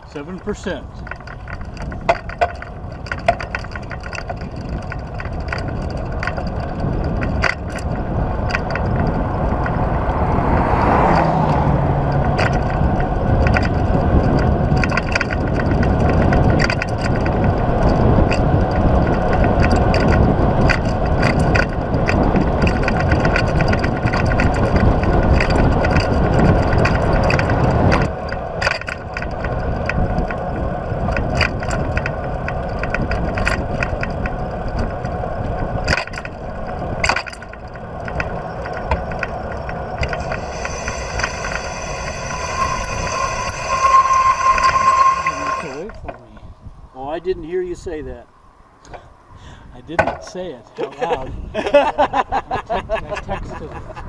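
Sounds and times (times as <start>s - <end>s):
wind and road noise: 0.0s - 54.0s
bicycle clicks and rattles: 0.2s - 10.2s, 12.1s - 44.0s.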